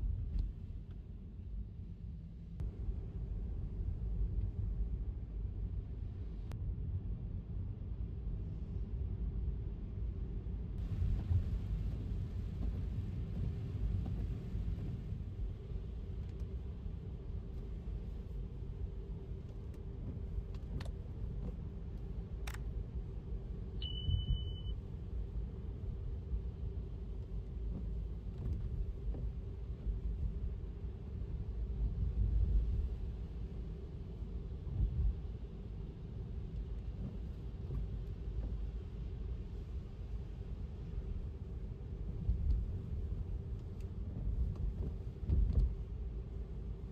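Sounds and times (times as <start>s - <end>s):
tyres rumbling on wet road: 10.8s - 16.2s
steady high beep: 23.8s - 24.7s.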